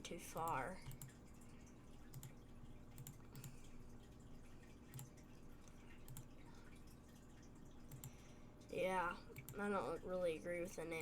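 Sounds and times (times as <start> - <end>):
low electrical hum: 0.0 - 11.0
computer mouse clicks: 0.4 - 1.2, 2.1 - 2.4, 3.0 - 3.6, 4.9 - 6.3, 7.9 - 8.2, 9.3 - 9.6.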